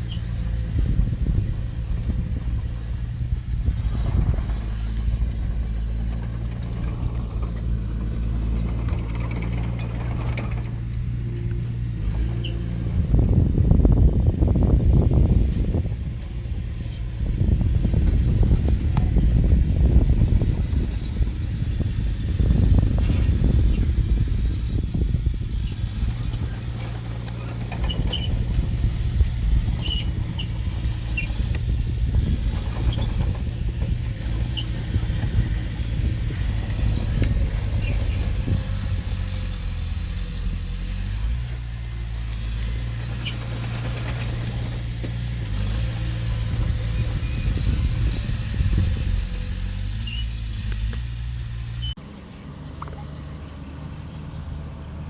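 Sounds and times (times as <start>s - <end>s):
diesel engine running: 0.0s - 55.0s
high metallic squeaks: 26.1s - 28.8s, 29.5s - 38.9s, 42.1s - 50.7s.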